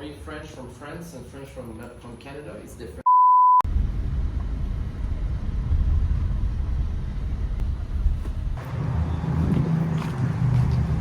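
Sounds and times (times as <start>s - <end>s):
steady low rumble: 3.6s - 8.7s.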